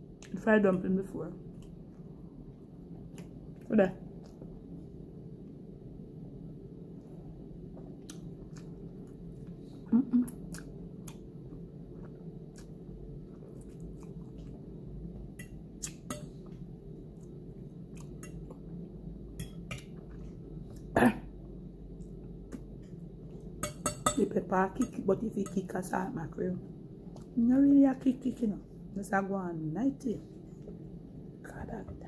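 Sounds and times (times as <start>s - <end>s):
low hum: 0.0s - 32.0s
close-up chewing: 7.9s - 14.7s.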